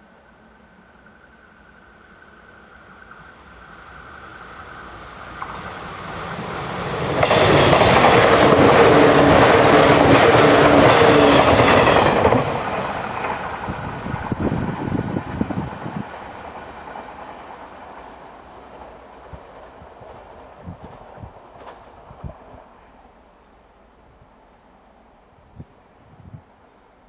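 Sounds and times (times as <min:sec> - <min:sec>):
electric train passing: 0:00.0 - 0:25.2
train wheels clattering over rail joints: 0:18.7 - 0:22.4.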